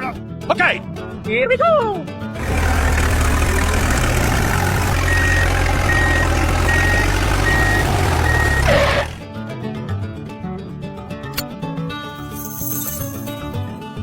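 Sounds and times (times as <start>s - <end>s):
truck engine running: 2.4s - 9.2s
reversing alarm beeping: 4.7s - 9.2s.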